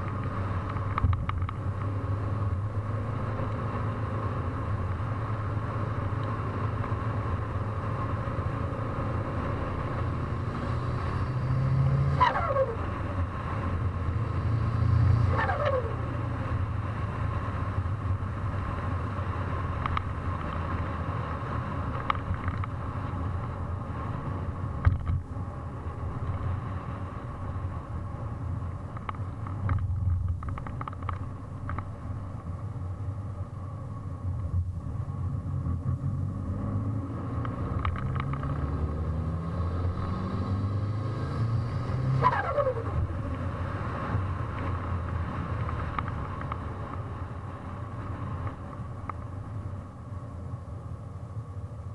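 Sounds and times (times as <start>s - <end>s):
car engine idling and revving: 0.0s - 51.9s
turbo whistle and flutter: 12.2s - 12.9s, 15.3s - 16.1s, 42.2s - 43.1s.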